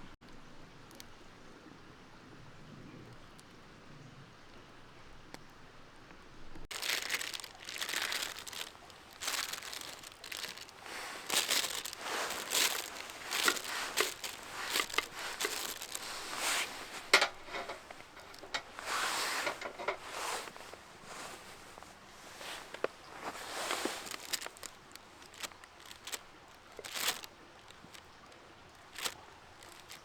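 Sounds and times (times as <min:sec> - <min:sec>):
crinkly material crumpling: 0:06.7 - 0:30.0.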